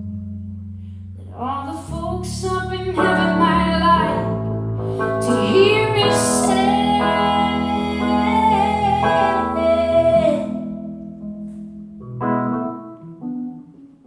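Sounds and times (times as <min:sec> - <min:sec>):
keyboard chords: 0:00.0 - 0:14.0
woman singing with vibrato: 0:01.2 - 0:10.8.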